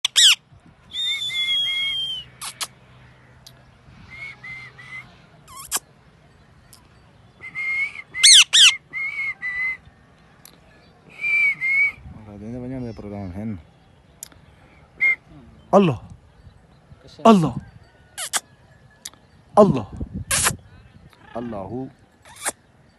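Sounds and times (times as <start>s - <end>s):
parrot whistling: 0.0s - 0.4s, 7.5s - 9.8s.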